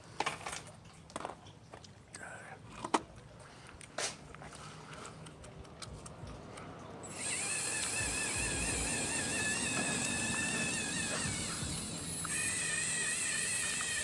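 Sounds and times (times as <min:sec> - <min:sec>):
small electric motor whining: 0:07.0 - 0:14.0.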